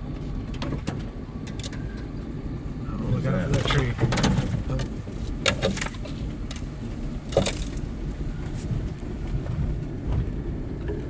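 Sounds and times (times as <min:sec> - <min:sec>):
engine and tyres rumbling: 0:00.0 - 0:11.0
rattling and knocking over bumps: 0:02.9 - 0:10.8.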